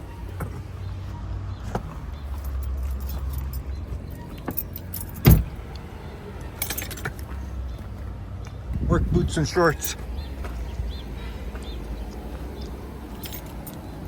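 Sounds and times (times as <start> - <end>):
keys jangling: 1.8 - 7.7, 9.8 - 14.0
loud thump: 5.2 - 5.6.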